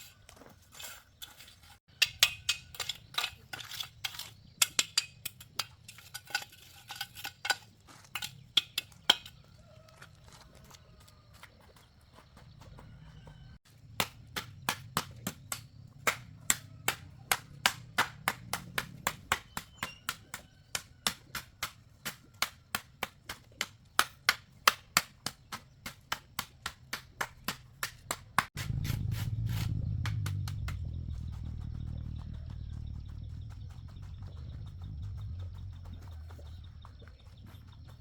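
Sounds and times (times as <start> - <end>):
loud low rumble: 28.6 - 36.7
low hum: 28.6 - 38.0.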